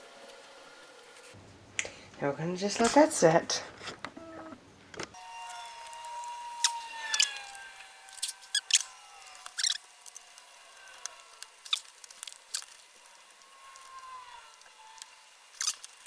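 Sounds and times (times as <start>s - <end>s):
plastic laptop parts clicking: 6.0s - 13.9s.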